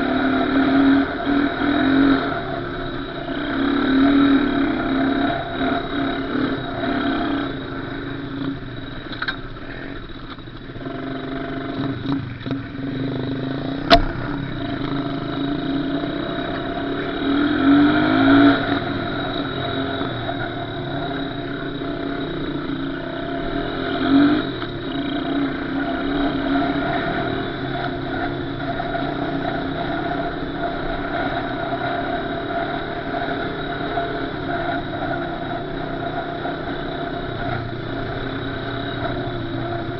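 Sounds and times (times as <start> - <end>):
small engine running and revving: 0.0 - 39.9
sharp click: 13.8 - 14.3.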